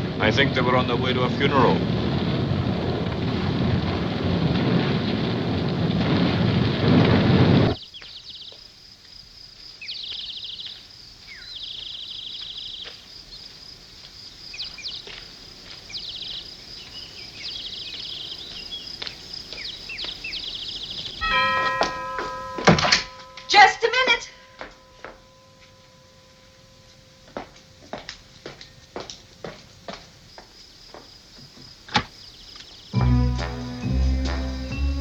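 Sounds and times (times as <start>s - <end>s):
loud steady rushing noise: 0.0s - 4.4s
chime of steady tones: 21.2s - 28.9s, 33.0s - 35.0s
high chirping trills: 32.9s - 35.0s.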